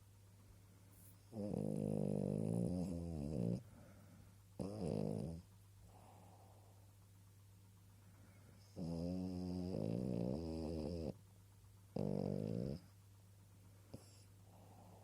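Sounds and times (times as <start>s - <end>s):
dog snoring: 1.0s - 6.7s, 8.6s - 11.2s, 11.9s - 13.0s, 13.9s - 15.0s.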